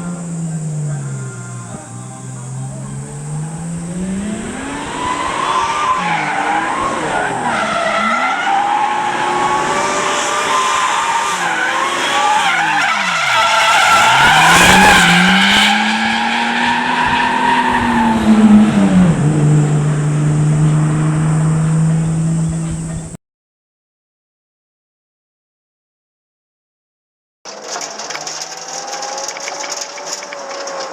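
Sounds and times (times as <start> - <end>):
car engine revving: 0.0 - 23.2, 27.5 - 30.9.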